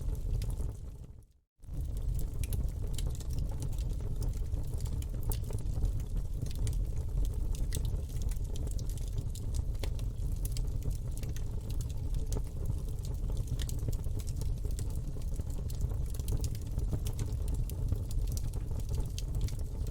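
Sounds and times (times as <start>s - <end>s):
burning wood crackling and popping: 0.0s - 19.9s
campfire flames rumbling: 0.0s - 19.9s.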